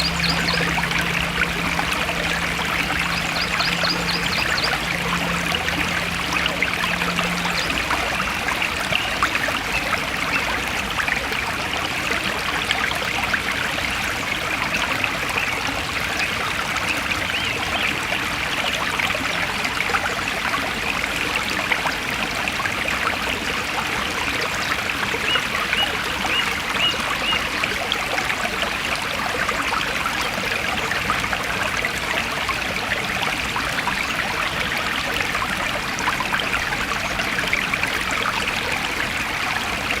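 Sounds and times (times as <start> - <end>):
stream flowing over stones: 0.0 - 40.0.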